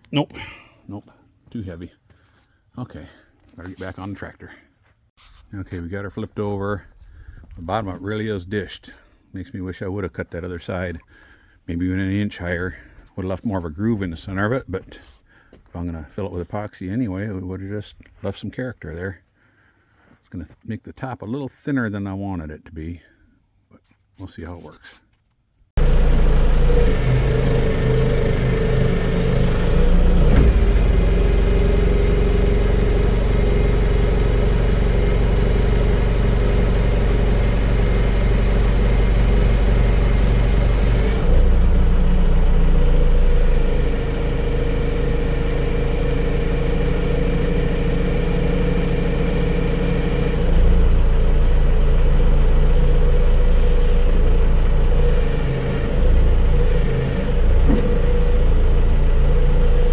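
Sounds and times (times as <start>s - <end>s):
engine running: 25.8s - 59.9s.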